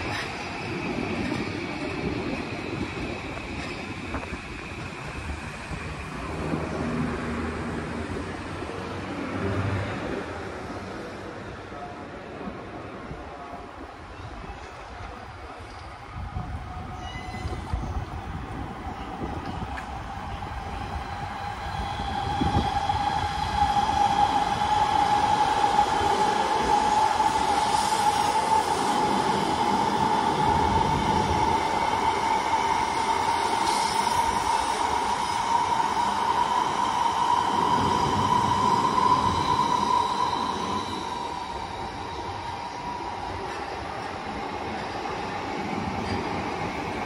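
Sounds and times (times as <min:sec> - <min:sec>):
electric train rolling past: 0:00.0 - 0:47.0.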